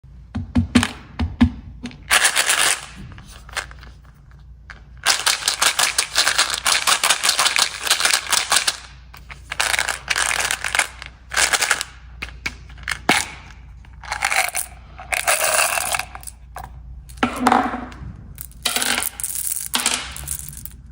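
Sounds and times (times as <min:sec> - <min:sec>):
snack packets crackling: 0:02.1 - 0:16.5.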